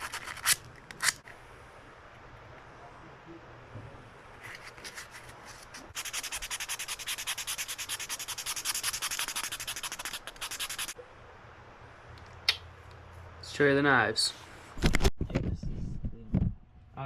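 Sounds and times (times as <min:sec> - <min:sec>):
sandpaper rasping on antler: 0:05.9 - 0:11.0.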